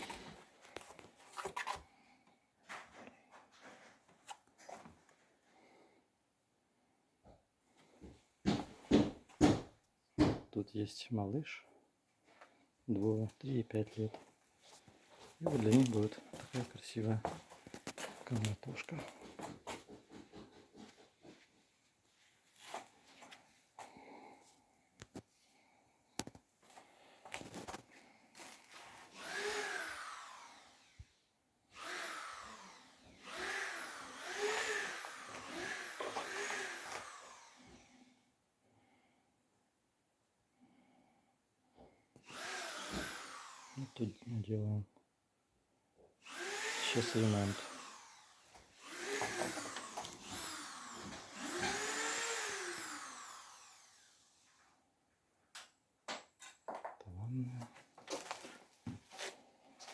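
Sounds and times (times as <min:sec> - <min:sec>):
electric drill whirring: 0:29.0 - 0:38.1, 0:42.2 - 0:44.2, 0:46.2 - 0:54.7
drill clicks: 0:29.1 - 0:31.0, 0:31.8 - 0:37.6, 0:42.2 - 0:44.0, 0:46.2 - 0:54.5.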